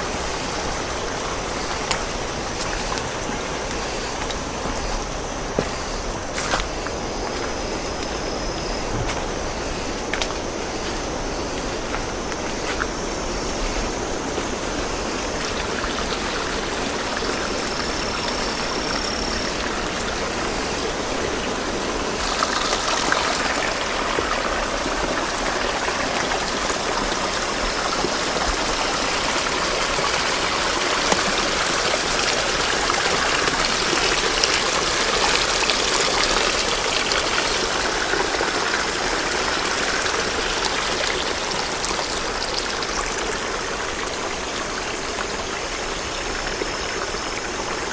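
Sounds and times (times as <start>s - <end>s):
stream water rushing: 0.0s - 47.9s.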